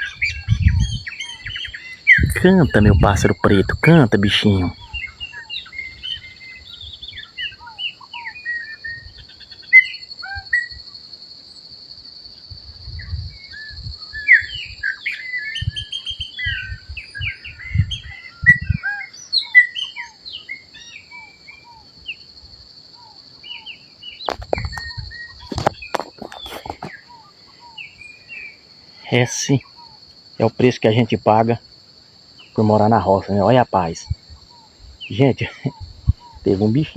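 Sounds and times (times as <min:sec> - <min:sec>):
bird whistling and chirping: 0:00.0 - 0:03.4, 0:04.7 - 0:10.8, 0:13.0 - 0:22.3, 0:23.0 - 0:28.6
thumps on microphone: 0:24.2 - 0:27.0.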